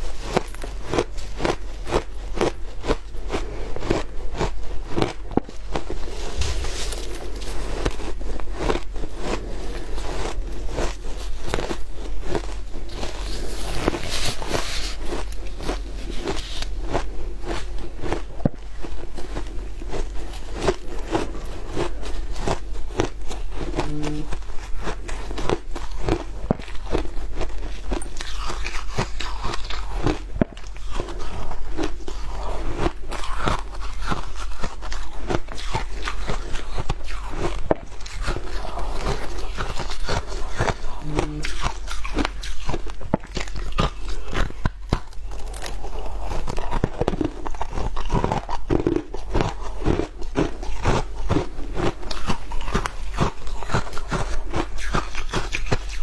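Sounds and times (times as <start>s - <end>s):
shaved ice crunching: 5.9s - 18.3s.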